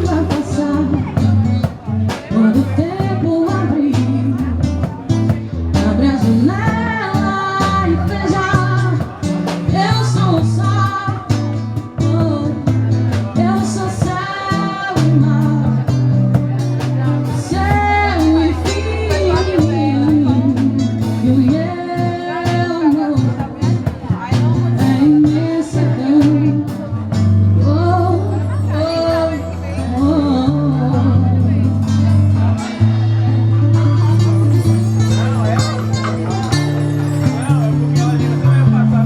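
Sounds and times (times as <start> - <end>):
band music with guitar: 0.0 - 39.0.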